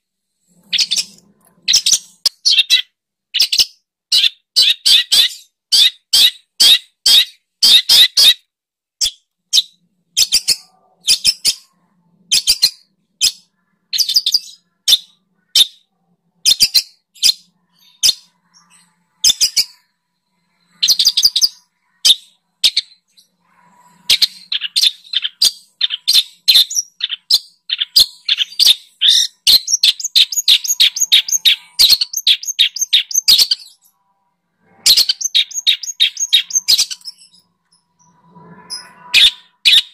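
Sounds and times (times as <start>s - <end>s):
recorded songbird chirping: 0.0s - 8.4s, 9.0s - 39.9s.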